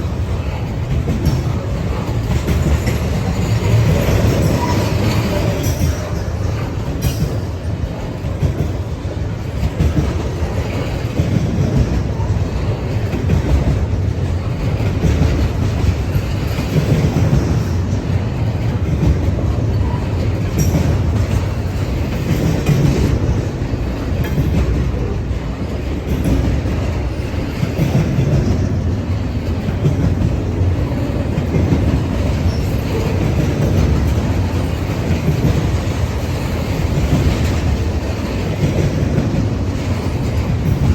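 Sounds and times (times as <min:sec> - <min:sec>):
freight train wheels rumbling: 0:00.0 - 0:40.9.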